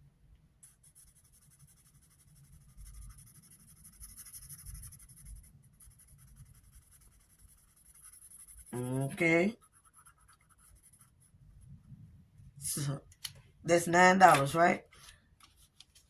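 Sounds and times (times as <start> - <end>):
pen scratching on paper: 0.6 - 11.8.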